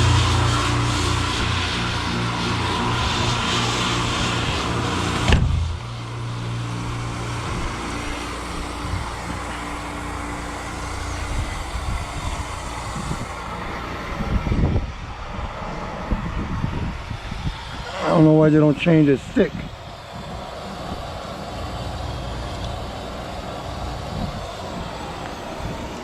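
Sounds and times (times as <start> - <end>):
truck engine idling: 0.0 - 14.0
loud hiss: 0.0 - 14.2
sharp bang: 4.3 - 6.0.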